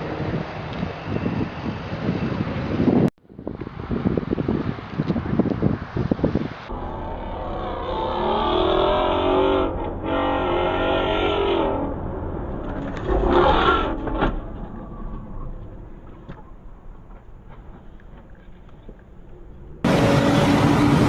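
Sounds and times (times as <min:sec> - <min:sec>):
car engine revving: 0:19.8 - 0:21.0.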